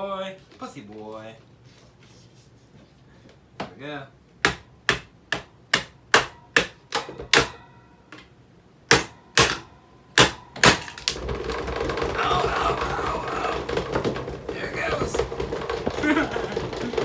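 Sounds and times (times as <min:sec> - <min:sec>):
noisy fan whir: 0:00.0 - 0:17.0.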